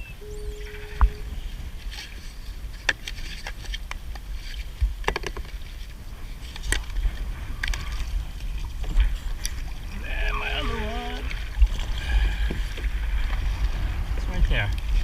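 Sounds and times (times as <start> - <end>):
paddle strokes splashing: 0.6 - 15.0
steady low rumble: 5.9 - 15.0.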